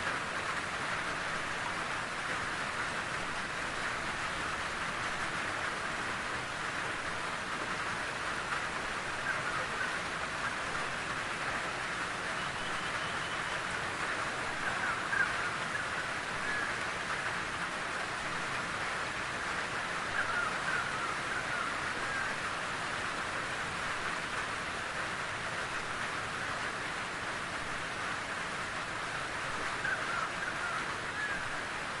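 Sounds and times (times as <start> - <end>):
steady rain in forest: 0.0 - 32.0
bird calling: 29.8 - 31.5.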